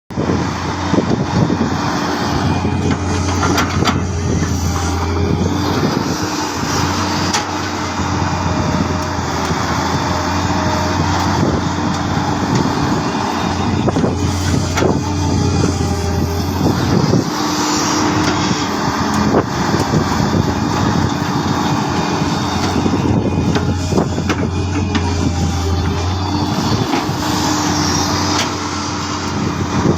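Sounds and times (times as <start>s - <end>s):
excavator diesel engine running: 0.1s - 29.9s.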